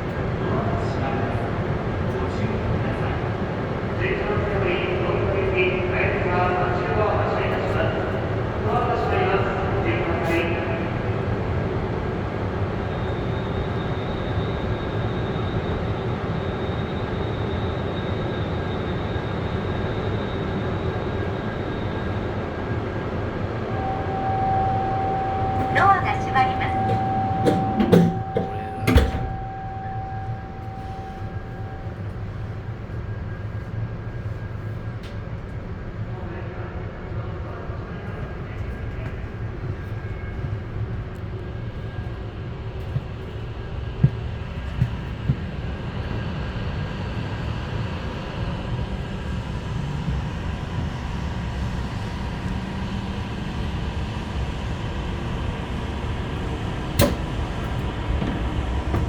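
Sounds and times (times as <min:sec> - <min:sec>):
train running rumble: 0:00.0 - 0:59.0
faint steady whine: 0:23.6 - 0:32.9
steady tone: 0:23.7 - 0:32.1
knocks: 0:26.6 - 0:29.3.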